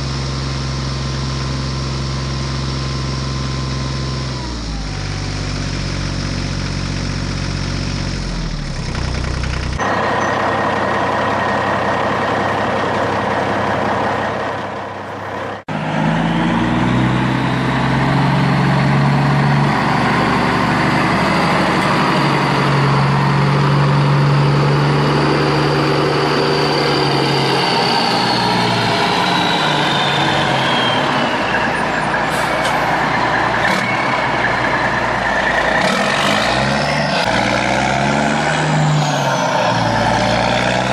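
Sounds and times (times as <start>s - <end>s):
diesel engine of heavy machinery: 0.0s - 40.9s
high machine whine: 8.3s - 15.6s.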